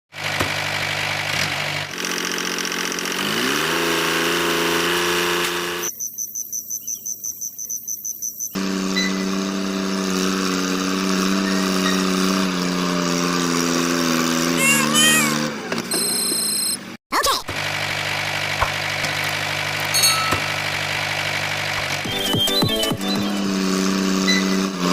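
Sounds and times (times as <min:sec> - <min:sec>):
small tractor motor running: 0:00.1 - 0:05.9, 0:08.6 - 0:24.9
fast-pulsing high tone: 0:22.0 - 0:23.6.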